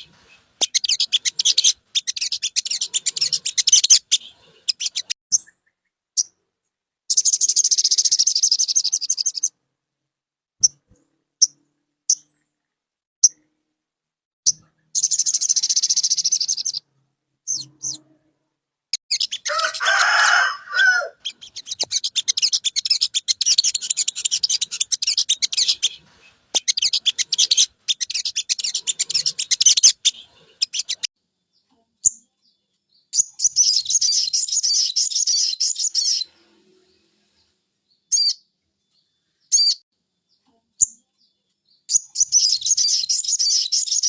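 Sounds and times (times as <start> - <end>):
bird chattering trills: 0.0 - 6.3, 19.0 - 20.0, 20.8 - 31.1.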